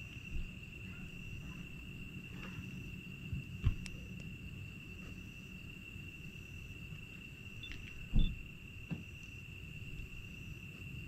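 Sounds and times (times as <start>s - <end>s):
insect trill: 0.0s - 11.0s
low background rumble: 0.0s - 11.0s
low thump: 8.1s - 9.1s.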